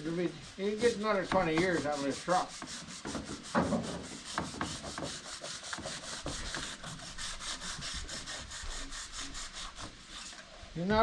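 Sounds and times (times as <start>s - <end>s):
sandpaper rubbing back and forth: 0.0s - 10.4s
thump: 3.1s - 4.7s.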